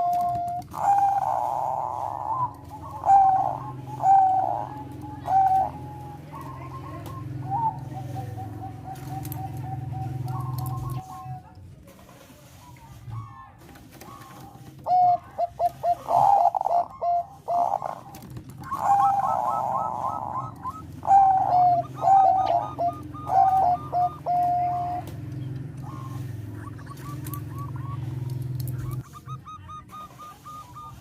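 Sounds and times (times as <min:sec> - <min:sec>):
dove cooing: 0:00.0 - 0:11.5, 0:13.0 - 0:31.0
steady low hum: 0:00.0 - 0:11.7, 0:12.3 - 0:31.0.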